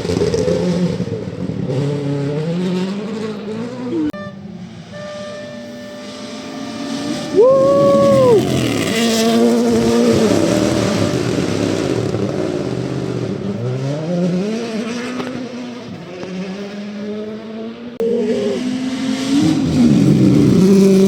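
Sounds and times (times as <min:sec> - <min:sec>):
rally car engine revving: 0:00.0 - 0:21.0
tyre and road noise: 0:00.0 - 0:21.0.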